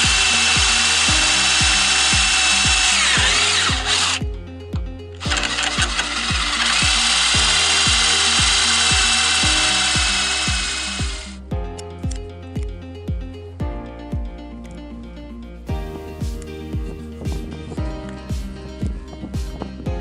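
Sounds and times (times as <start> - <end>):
power drill running: 0.0 - 4.2, 5.2 - 11.4
background music with steady beat: 0.0 - 20.0.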